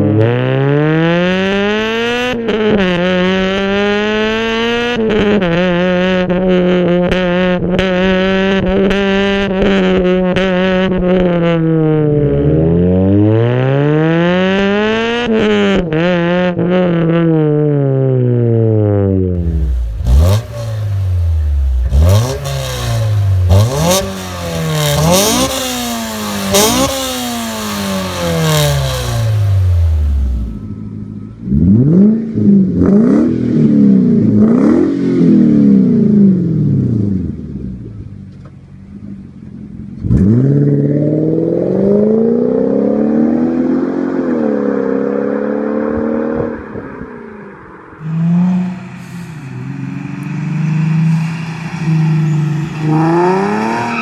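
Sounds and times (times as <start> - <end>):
car engines revving: 19.3 - 38.5, 39.5 - 54.0.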